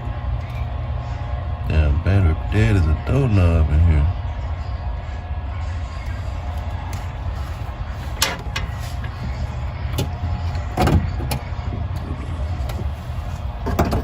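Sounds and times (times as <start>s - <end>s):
steady low rumble: 0.0s - 13.6s
hands working on wiring: 6.5s - 14.0s.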